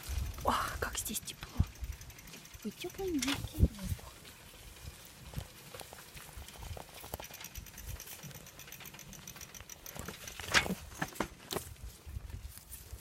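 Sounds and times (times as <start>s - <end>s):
faint high rapid ticking: 0.0s - 4.2s, 6.4s - 10.4s.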